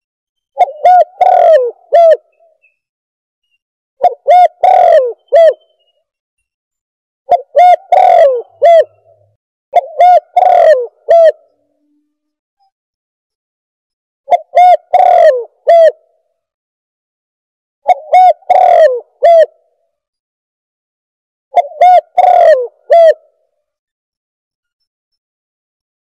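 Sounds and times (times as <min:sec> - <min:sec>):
dove cooing: 0:00.6 - 0:02.4, 0:04.0 - 0:05.7, 0:07.3 - 0:11.9, 0:14.3 - 0:16.0, 0:17.9 - 0:19.6, 0:21.6 - 0:23.4.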